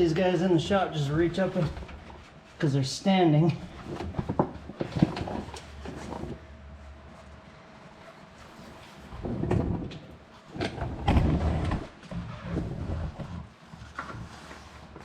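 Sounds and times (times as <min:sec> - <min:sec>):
scraping and rustling handling noises: 0:03.4 - 0:11.0.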